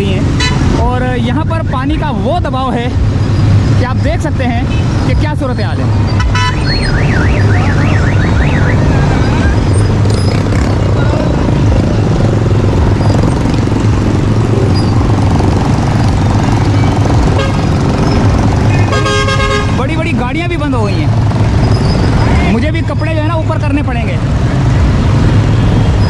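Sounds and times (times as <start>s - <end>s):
heavy traffic through floodwater: 0.0s - 26.0s
warbling siren-like tone: 6.6s - 9.8s.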